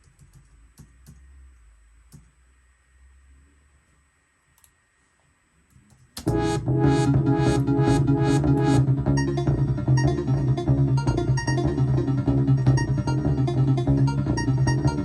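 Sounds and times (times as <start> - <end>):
drum machine beat: 6.2 - 15.0
electronic synthesizer music: 6.2 - 15.0
repeating bass line: 6.2 - 15.0.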